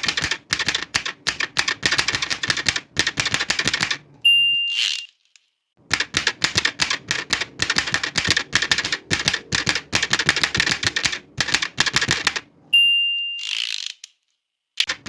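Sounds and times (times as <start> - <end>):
typewriter key strikes: 0.0 - 4.0, 5.9 - 12.4.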